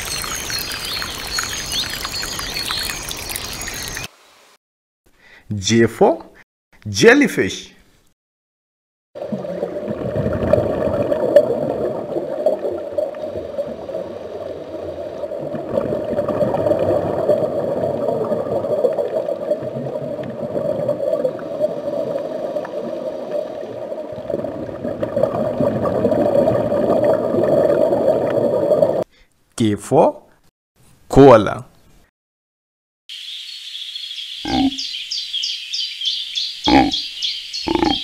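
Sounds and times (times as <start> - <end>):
underwater rushing and gurgling: 9.2 - 29.0.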